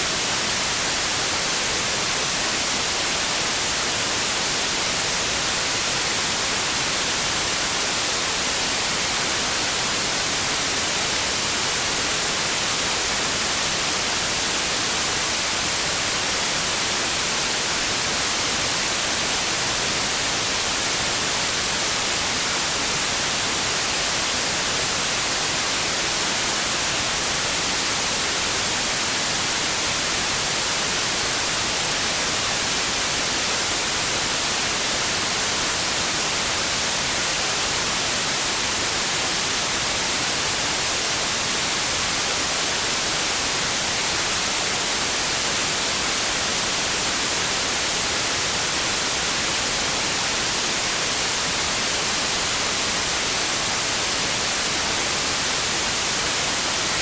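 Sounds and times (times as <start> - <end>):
white noise hiss: 0.0 - 57.0.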